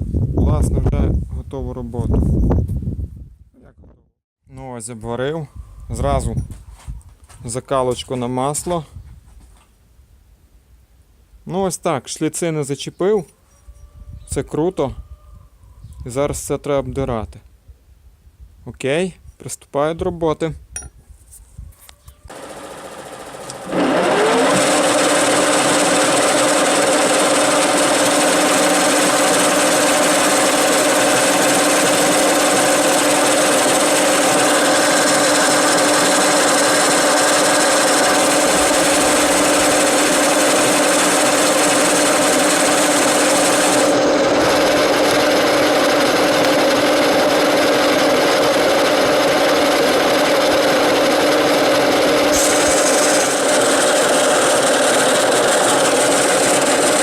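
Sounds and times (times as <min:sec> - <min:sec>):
angle grinder grinding steel: 0:22.3 - 0:57.0.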